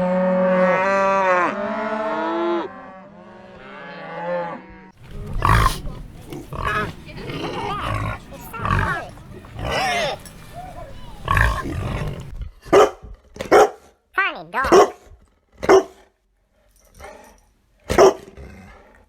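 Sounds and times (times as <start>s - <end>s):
cow mooing: 0.0s - 12.3s
animal grunting: 5.0s - 12.4s.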